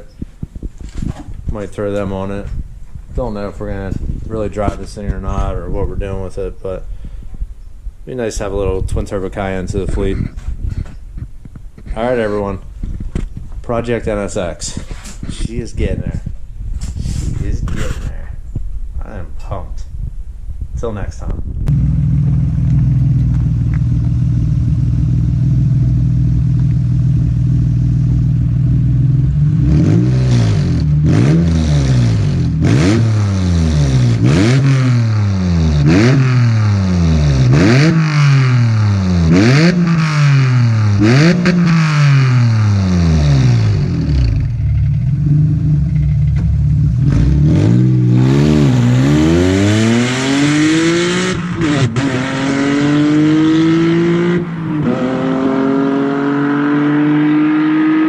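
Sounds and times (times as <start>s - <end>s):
car engine idling: 21.7s - 29.6s, 38.0s - 48.9s
car engine revving: 21.7s - 58.0s.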